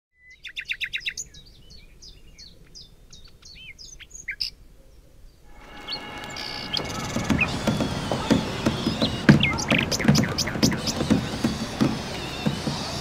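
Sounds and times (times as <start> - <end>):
songbird singing: 0.2 - 13.0
steady background sound: 5.5 - 12.9.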